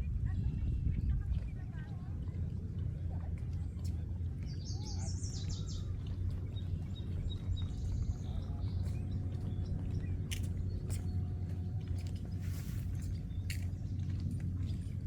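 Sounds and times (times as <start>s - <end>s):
steady low rumble: 0.0s - 15.0s
small birds chirping: 3.7s - 15.0s.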